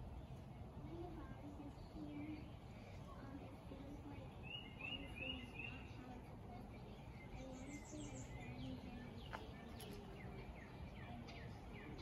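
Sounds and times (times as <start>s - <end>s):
low background noise: 0.0s - 12.0s
birds chirping: 7.0s - 12.0s.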